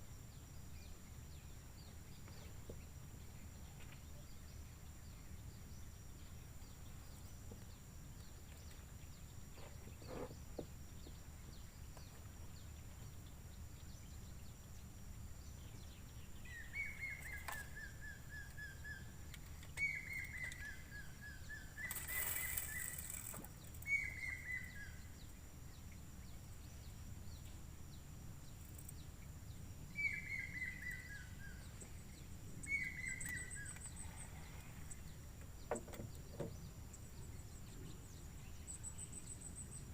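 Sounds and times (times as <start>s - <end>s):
bird singing: 0.0s - 39.9s
brief rustle: 21.8s - 23.9s.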